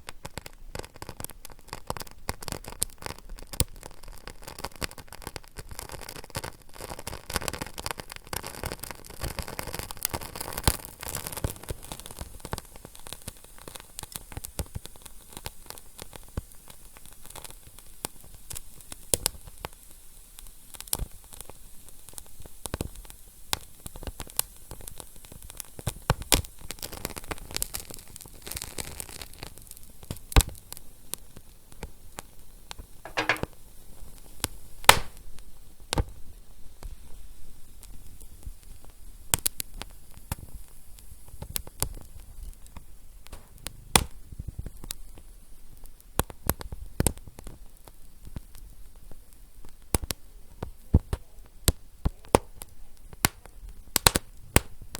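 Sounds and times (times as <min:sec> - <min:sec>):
wood fire crackling: 0:34.9 - 0:35.3.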